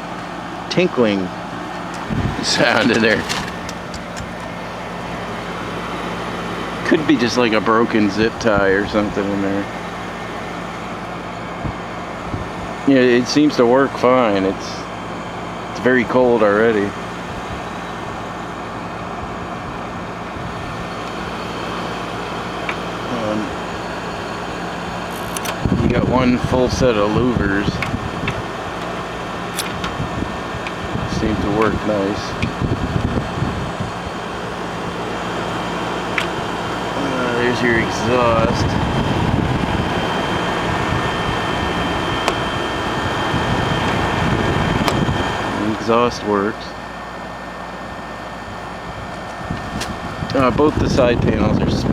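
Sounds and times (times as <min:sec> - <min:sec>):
air conditioner fan blowing: 0:00.0 - 0:51.9
compressor low hum: 0:00.0 - 0:51.9
faint steady whine: 0:00.0 - 0:51.9
click: 0:25.1 - 0:25.6.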